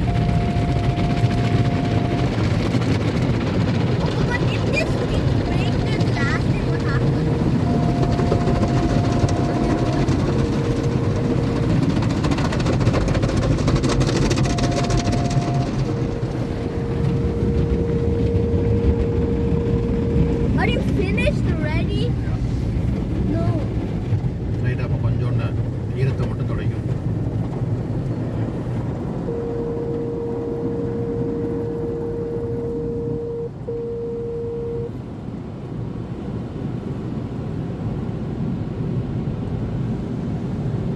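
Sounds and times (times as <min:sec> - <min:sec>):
steady tone: 0:00.0 - 0:03.3, 0:04.9 - 0:21.6, 0:29.2 - 0:34.9
faint steady whines: 0:00.0 - 0:23.6, 0:24.6 - 0:35.9
car wash machinery rumble: 0:00.0 - 0:40.9.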